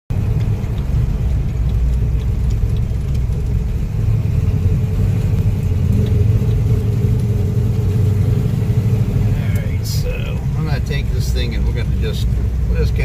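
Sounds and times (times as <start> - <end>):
car engine rumbling: 0.1 - 13.0.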